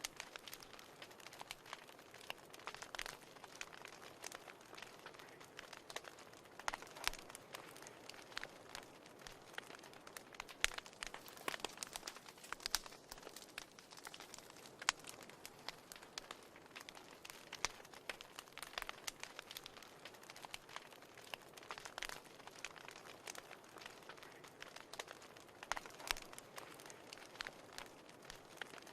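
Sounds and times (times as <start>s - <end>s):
fire crackling and popping: 0.0s - 28.9s.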